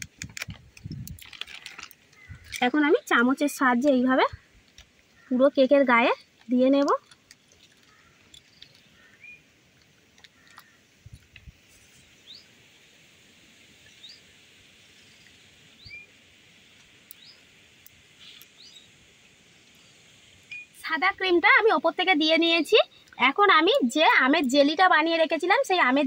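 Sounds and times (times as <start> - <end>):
bird chirping: 7.4 - 9.5, 15.0 - 16.2, 17.1 - 17.5, 18.2 - 19.0, 19.8 - 20.8.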